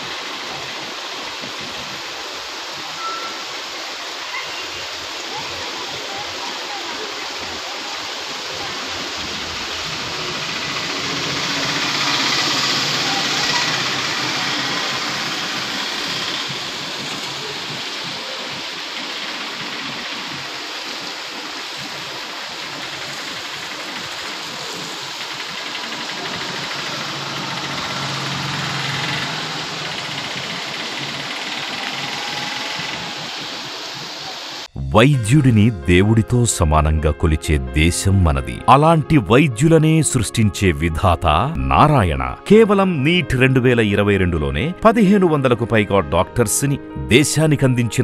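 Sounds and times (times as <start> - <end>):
heavy rain on road: 0.0 - 34.7
tyres hissing on wet road: 0.0 - 34.7
scooter and car engines passing: 9.4 - 20.4, 22.6 - 34.1.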